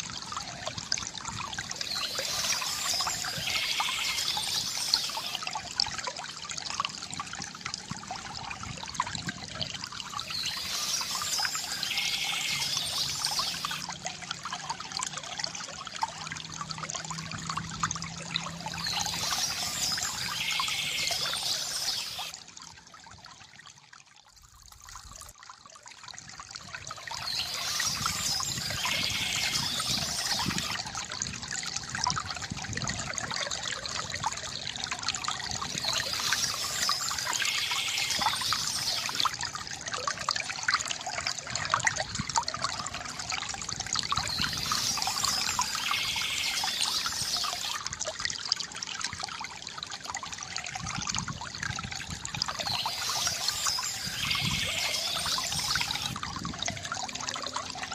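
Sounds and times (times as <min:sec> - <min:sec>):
water trickling from fountain: 0:00.0 - 0:57.9.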